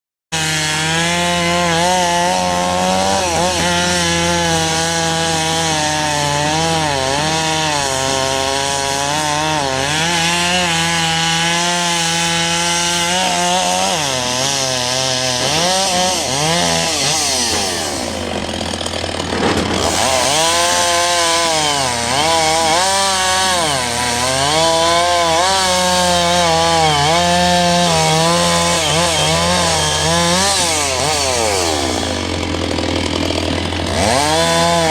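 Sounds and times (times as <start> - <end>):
bulldozer diesel engine under load: 15.7 - 34.9.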